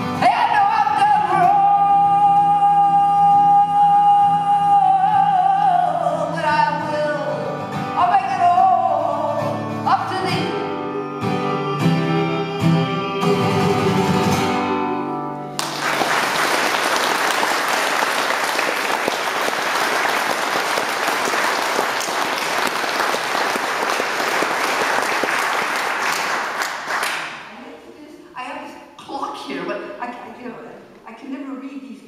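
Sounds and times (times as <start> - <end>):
acoustic guitar chords: 0.0 - 16.0
audience applause: 15.6 - 27.4.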